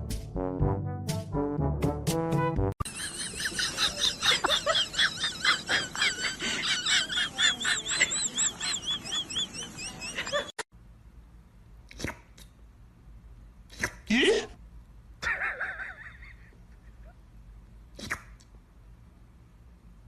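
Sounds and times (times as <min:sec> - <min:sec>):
rapid high-pitched chirping: 0:07.4 - 0:10.5.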